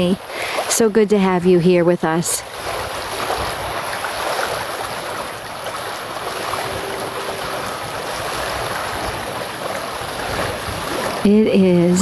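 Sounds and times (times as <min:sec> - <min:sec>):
river water rushing over rapids: 0:02.4 - 0:12.0.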